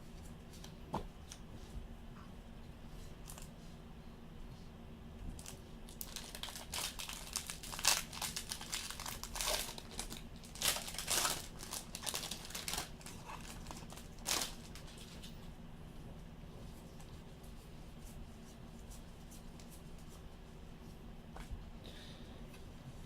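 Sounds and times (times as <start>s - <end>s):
card packaging crinkling: 5.4s - 15.3s.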